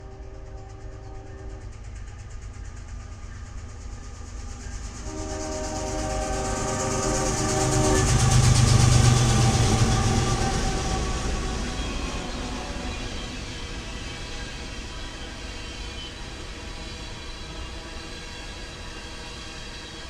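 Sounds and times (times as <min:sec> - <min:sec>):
locomotive air horn chord: 0:00.0 - 0:01.7, 0:04.9 - 0:15.0
locomotive engine rumble: 0:00.0 - 0:19.3
train wheel noise: 0:00.0 - 0:20.0.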